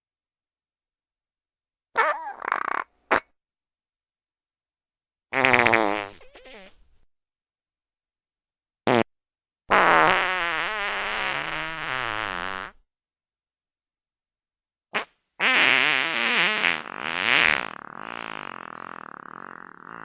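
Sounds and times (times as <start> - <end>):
fart sound effects: 2.0 - 3.3, 5.3 - 6.8, 8.9 - 9.1, 9.7 - 12.8, 15.0 - 20.0.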